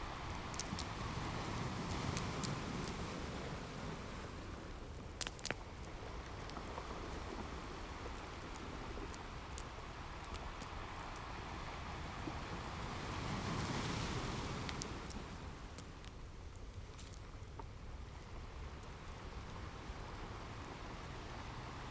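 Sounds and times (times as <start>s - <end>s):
ocean waves: 0.0s - 5.0s, 5.9s - 16.0s
wood fire crackling and popping: 0.2s - 0.9s, 4.8s - 6.9s.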